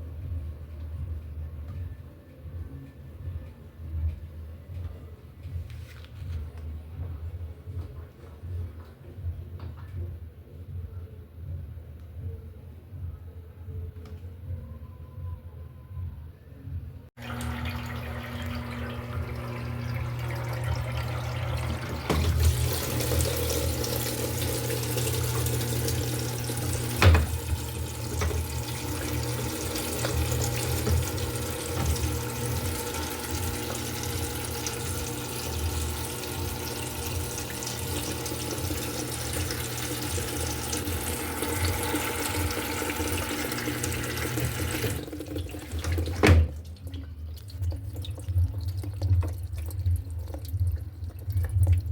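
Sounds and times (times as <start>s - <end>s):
water running into washing machine: 17.2s - 51.9s.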